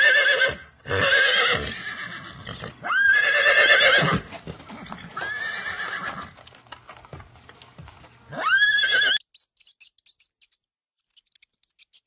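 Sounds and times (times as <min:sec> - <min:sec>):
horse neighing: 0:00.0 - 0:06.4, 0:08.3 - 0:09.2.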